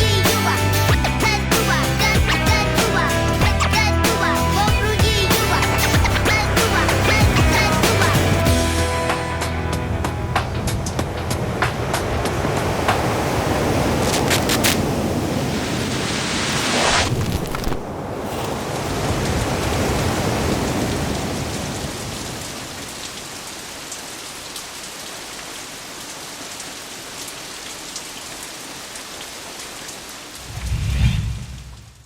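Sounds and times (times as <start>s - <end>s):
steady rain: 4.2s - 32.0s
thunder rumbling: 6.9s - 14.0s, 30.4s - 32.0s
low boom: 30.4s - 32.0s.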